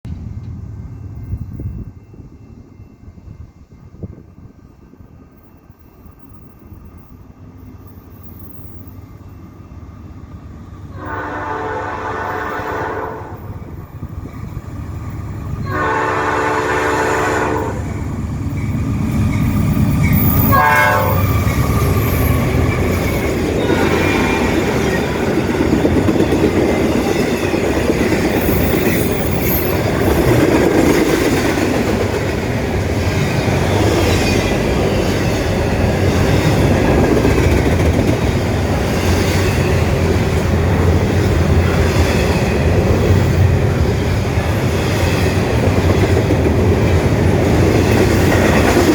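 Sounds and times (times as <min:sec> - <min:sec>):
locomotive horn: 0:10.9 - 0:13.6, 0:15.6 - 0:18.0, 0:20.4 - 0:21.4, 0:23.6 - 0:24.7
train wheels clacking on rails: 0:13.7 - 0:48.9.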